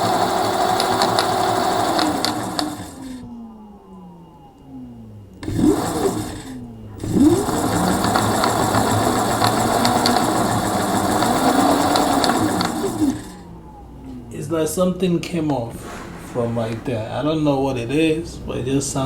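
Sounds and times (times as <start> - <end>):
loud rattling clatter: 0.0 - 3.3, 5.4 - 14.2
electric scooter motor whine: 0.0 - 19.0.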